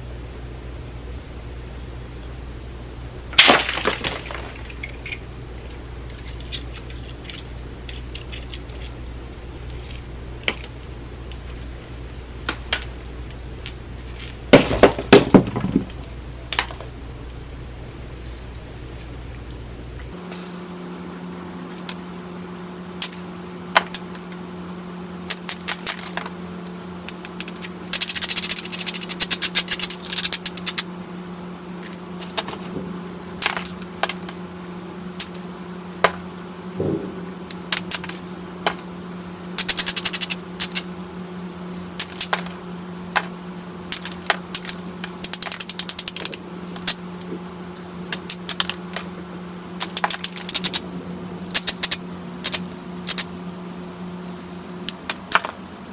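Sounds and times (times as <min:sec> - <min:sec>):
low hum: 0:15.9 - 0:55.9
stone-on-stone clicks: 0:25.2 - 0:30.9.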